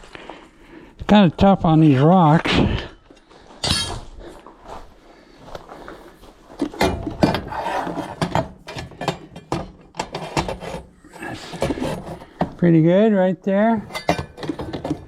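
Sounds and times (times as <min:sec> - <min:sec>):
metal parts clicking and knocking: 0:13.8 - 0:15.0.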